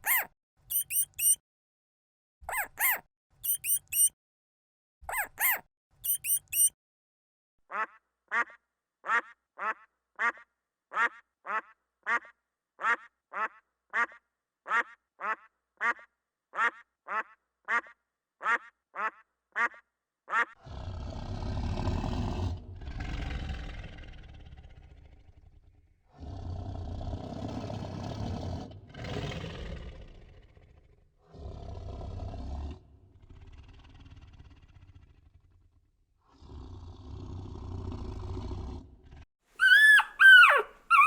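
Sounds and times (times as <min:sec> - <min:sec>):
high squeaks: 0:00.0 - 0:01.4, 0:02.5 - 0:04.1, 0:05.1 - 0:06.7, 0:39.6 - 0:41.0
large animal rasping roar: 0:20.6 - 0:25.2, 0:26.1 - 0:35.3, 0:36.3 - 0:41.0.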